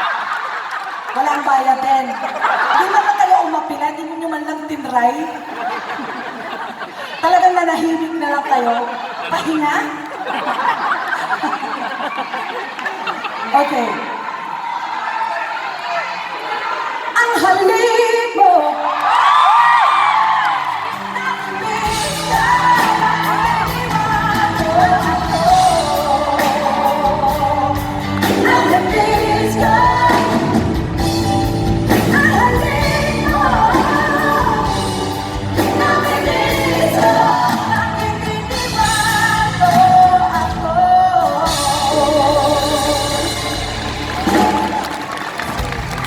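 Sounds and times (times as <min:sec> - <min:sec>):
live pop band playing: 0:20.6 - 0:46.0
person singing with vibrato: 0:20.8 - 0:44.9.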